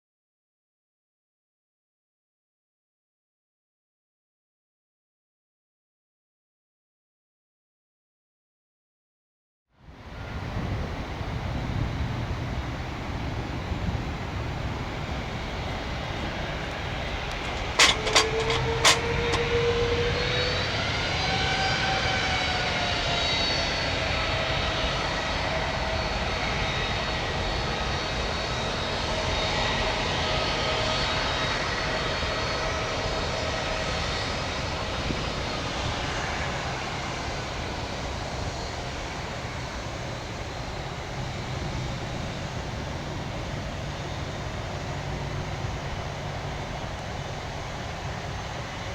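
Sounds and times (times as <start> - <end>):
jet engines whining: 10.2 - 48.9.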